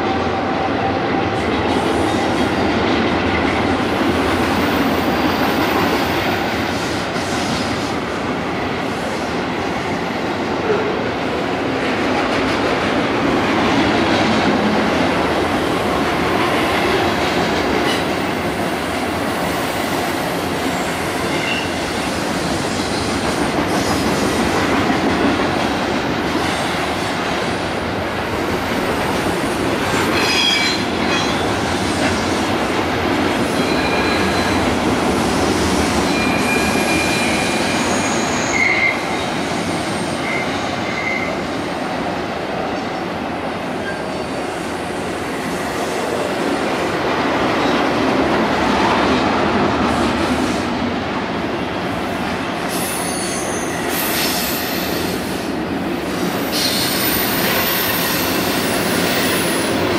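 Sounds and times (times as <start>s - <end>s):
freight train rumbling past: 0.0s - 59.9s
train wheels squealing: 20.3s - 24.4s, 30.0s - 32.0s, 33.5s - 34.8s, 35.8s - 41.5s, 43.8s - 46.0s, 52.6s - 55.5s, 56.4s - 59.9s.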